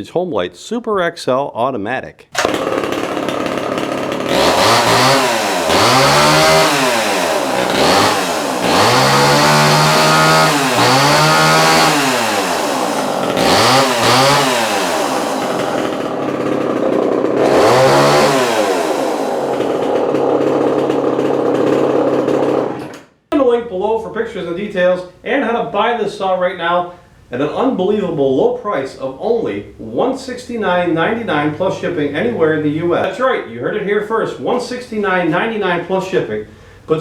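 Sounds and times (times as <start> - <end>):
chainsaw revving and idling: 2.4 - 23.0.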